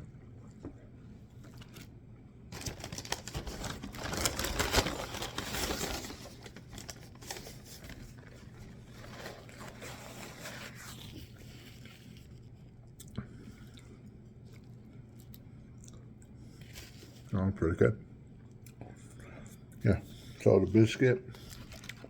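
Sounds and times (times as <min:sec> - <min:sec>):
paper wrapper crinkling: 0:02.5 - 0:12.4, 0:21.3 - 0:22.0.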